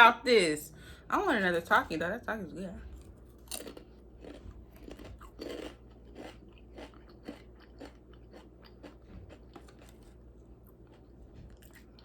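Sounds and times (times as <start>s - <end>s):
crunchy chips being chewed: 3.1s - 12.0s.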